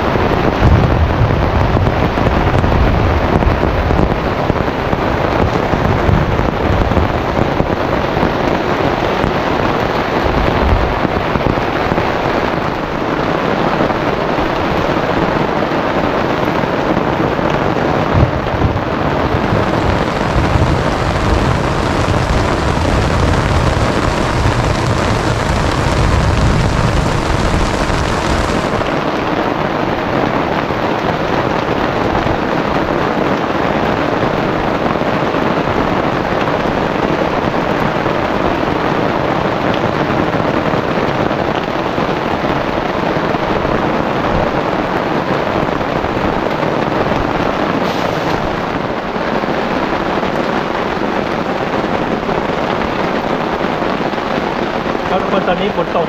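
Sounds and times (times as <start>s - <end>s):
deep rumble: 0.0s - 7.8s, 17.4s - 29.0s
gusting wind: 0.0s - 56.0s
heavy rain pouring: 0.0s - 56.0s.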